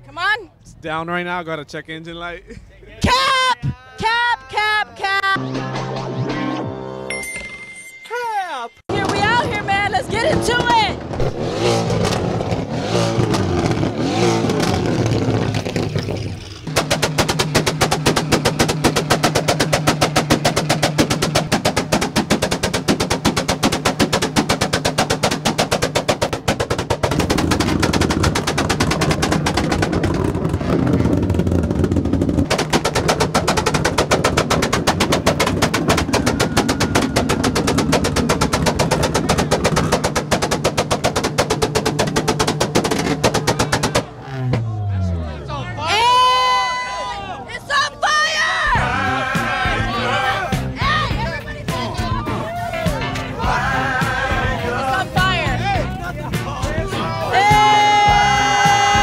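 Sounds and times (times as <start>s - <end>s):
car engine revving: 8.9s - 45.8s.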